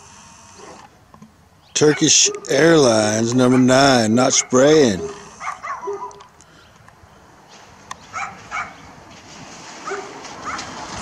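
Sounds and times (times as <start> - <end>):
dog barking: 1.8 - 2.6, 3.4 - 6.3, 8.1 - 8.8, 9.8 - 10.7.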